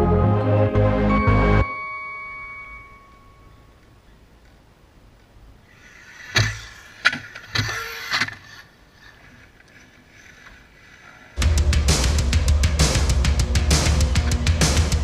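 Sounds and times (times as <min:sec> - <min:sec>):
radio-controlled car electric motor: 0:05.7 - 0:09.2.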